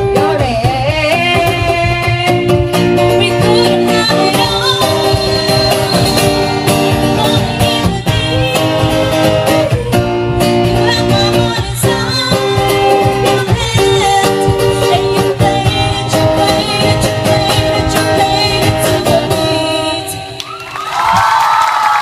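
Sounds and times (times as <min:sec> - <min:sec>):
guitar accompaniment: 0:00.0 - 0:21.2
crowd cheering: 0:20.3 - 0:22.0.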